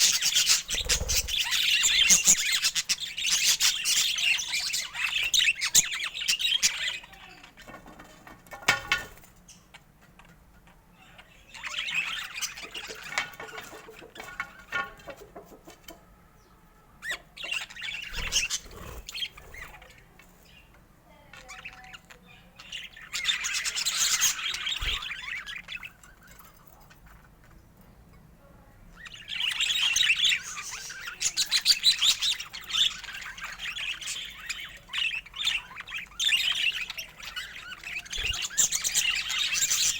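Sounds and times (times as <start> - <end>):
budgerigars chirping: 0.0 - 7.5, 11.2 - 14.7, 17.0 - 20.8, 21.4 - 27.4, 28.9 - 39.9.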